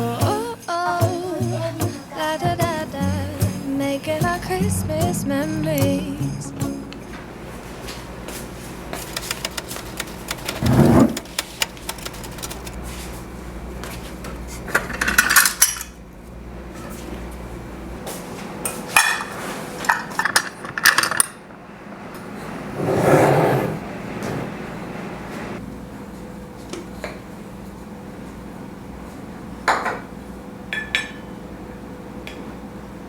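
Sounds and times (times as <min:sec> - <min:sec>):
utensils and dishes clinking: 0:14.7 - 0:16.0, 0:18.6 - 0:21.4
dishes clattering: 0:18.7 - 0:21.4.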